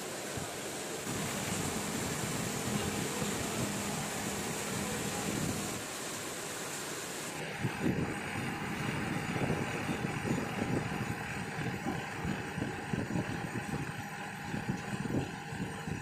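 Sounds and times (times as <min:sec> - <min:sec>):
faint rain hiss: 0:00.0 - 0:13.4
car engine idling: 0:01.1 - 0:05.8.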